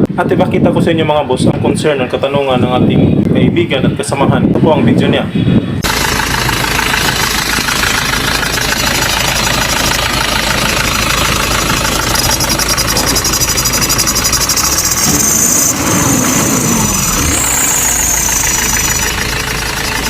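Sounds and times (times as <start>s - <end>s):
car engine idling: 5.8s - 20.0s
squeaking drive belt: 5.8s - 20.0s.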